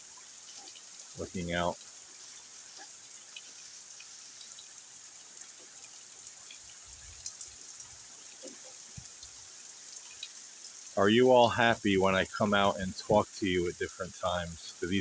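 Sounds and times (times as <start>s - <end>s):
rain on a car and porch: 0.0s - 15.0s
drops ticking: 11.3s - 15.0s.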